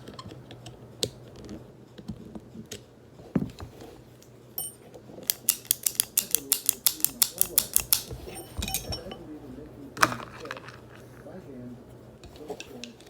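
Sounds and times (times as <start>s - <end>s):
metal gun parts clicking: 4.6s - 9.2s
fast sharp clicks: 5.2s - 8.3s.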